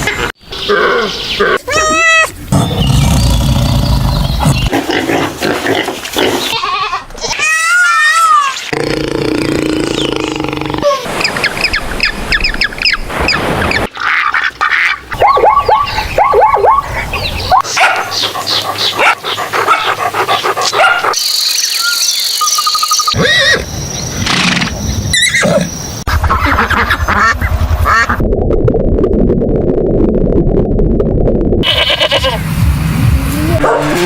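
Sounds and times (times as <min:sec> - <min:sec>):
animal calls: 0:14.0 - 0:21.2.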